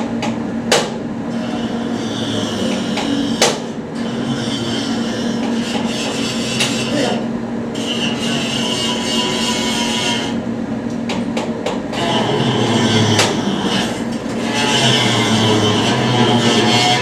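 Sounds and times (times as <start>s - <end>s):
machine humming and rattling: 0.0s - 17.0s.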